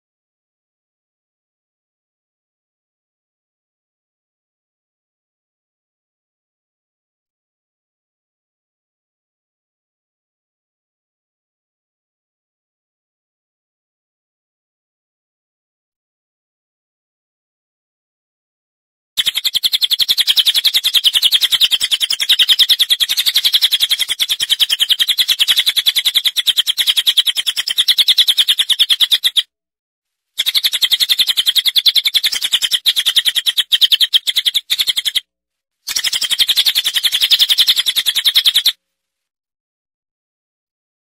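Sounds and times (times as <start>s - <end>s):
bird chattering trill: 19.2s - 29.5s, 30.4s - 35.3s, 35.9s - 38.8s.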